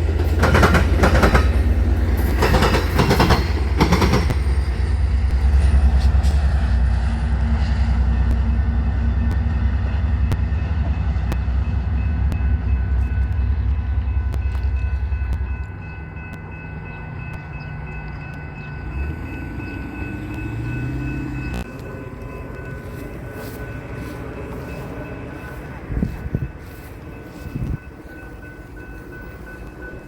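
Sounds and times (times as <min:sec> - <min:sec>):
train wheels clicking: 0:00.0 - 0:07.2
train rumbling past: 0:00.0 - 0:30.0.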